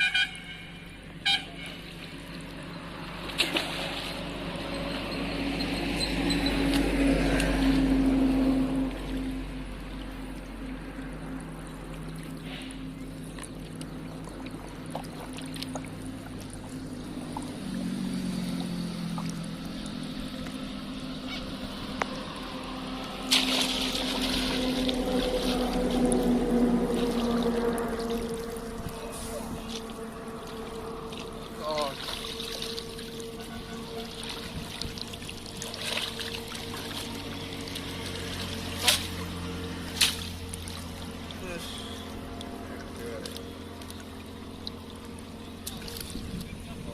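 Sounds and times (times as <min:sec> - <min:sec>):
boat motor humming: 0:00.0 - 0:46.9
water trickling and sloshing: 0:00.0 - 0:46.9
water slap: 0:03.3 - 0:04.2, 0:23.3 - 0:26.2, 0:38.4 - 0:39.3, 0:39.9 - 0:40.7.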